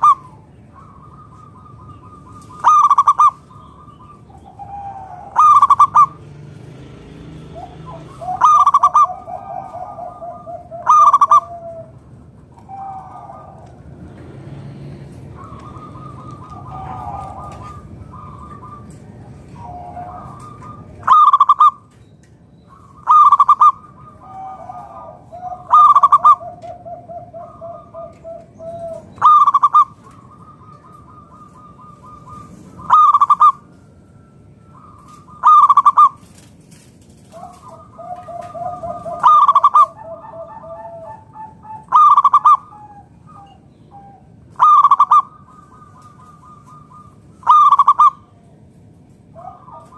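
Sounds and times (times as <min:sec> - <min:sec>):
dove cooing: 0:00.0 - 0:22.0, 0:22.6 - 0:49.9
rapid rattling coo: 0:34.9 - 0:41.2.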